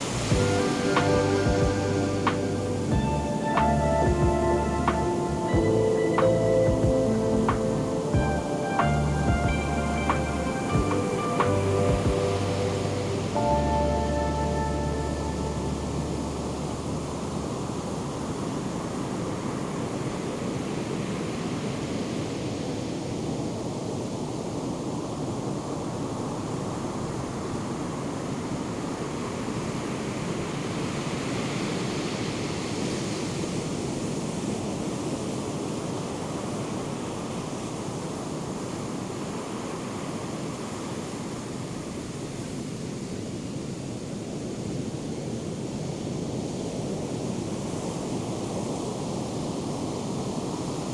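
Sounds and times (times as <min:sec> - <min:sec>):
ocean surf breaking: 0:00.0 - 0:22.7.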